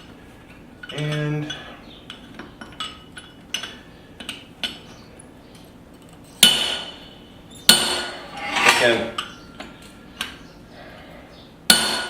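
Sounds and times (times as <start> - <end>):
heavy ringing hammer blows: 7.7 - 9.8.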